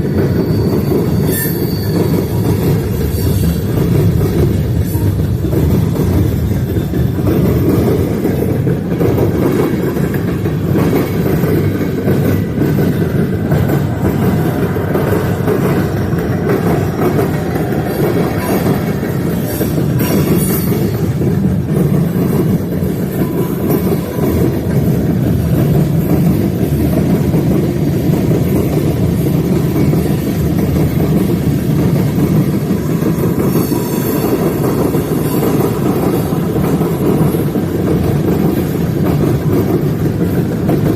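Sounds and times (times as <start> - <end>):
freight train wheels rumbling: 0.0 - 40.9.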